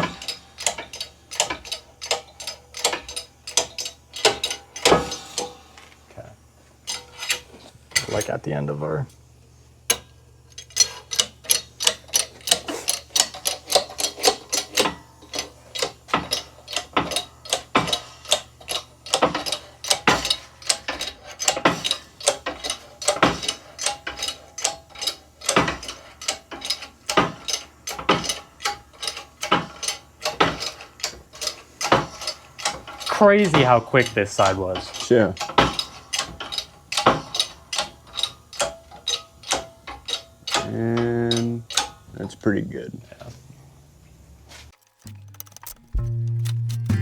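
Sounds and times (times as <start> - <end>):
ratchet wrench clicking: 0.0 - 5.6, 10.6 - 42.0, 44.7 - 47.0
low steady hum: 43.6 - 47.0.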